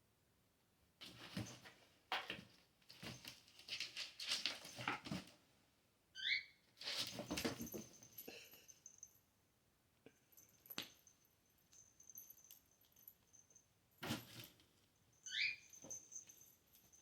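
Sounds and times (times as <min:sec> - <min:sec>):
kittens tapping and scuffling: 0:01.0 - 0:05.5, 0:06.8 - 0:09.0, 0:10.3 - 0:14.8.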